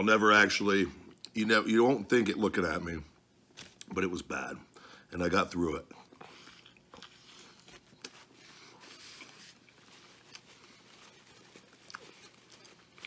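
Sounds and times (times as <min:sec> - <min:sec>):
chewing a large mouthful: 0:06.0 - 0:13.0.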